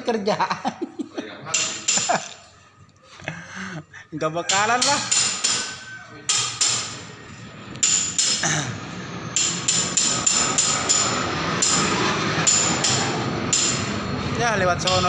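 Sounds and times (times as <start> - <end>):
hammer striking metal: 1.5 - 2.3, 4.5 - 7.2, 7.8 - 8.7, 9.3 - 14.1, 14.7 - 15.0.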